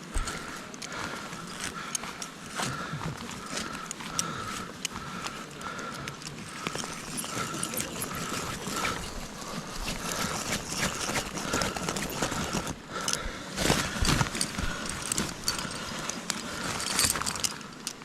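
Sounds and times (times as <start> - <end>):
light clicks and clinks: 0.1 - 18.0
footsteps crunching in snow: 6.4 - 17.4.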